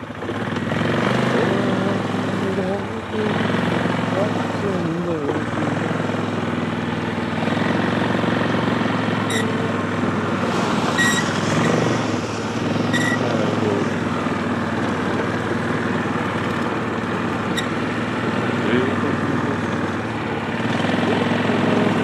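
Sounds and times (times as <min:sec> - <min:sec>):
atv engine running: 0:00.0 - 0:22.0
short high-pitched beeps: 0:09.3 - 0:09.5, 0:12.9 - 0:13.2.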